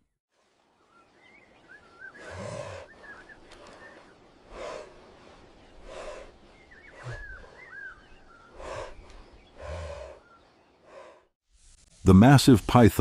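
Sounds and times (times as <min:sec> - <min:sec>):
whistled bird calls: 0:00.9 - 0:04.2, 0:06.5 - 0:10.6
heavy rhythmic breaths or snorts: 0:02.2 - 0:11.4.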